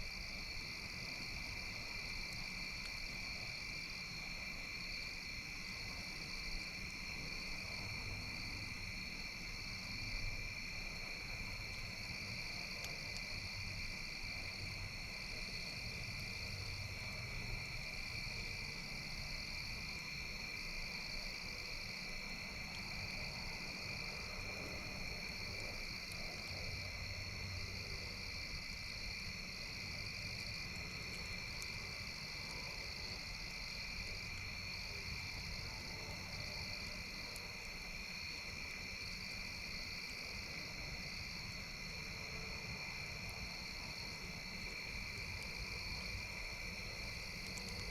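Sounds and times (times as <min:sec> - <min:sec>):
crickets and frogs trilling: 0:00.0 - 0:47.9.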